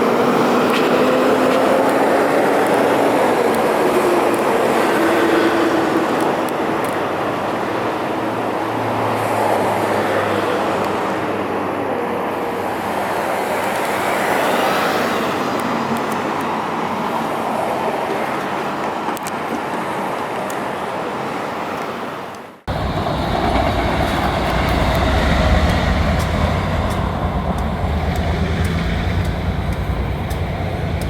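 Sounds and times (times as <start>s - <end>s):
wheel-on-rail noise: 0.0s - 31.0s.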